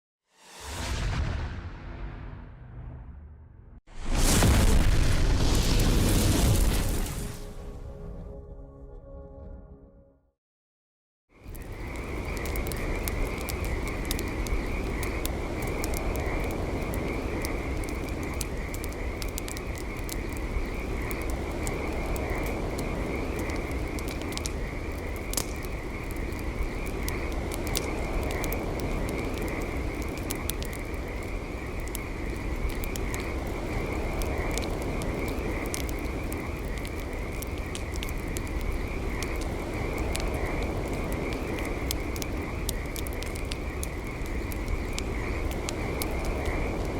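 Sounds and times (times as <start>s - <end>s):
low rumble: 0.4s - 8.9s
campfire crackling and popping: 11.4s - 46.9s.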